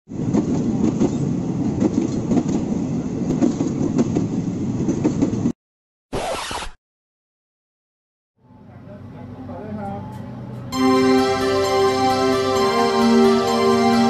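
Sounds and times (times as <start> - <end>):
train rumbling on rails: 0.1 - 5.6
bright burst of noise: 6.2 - 6.8.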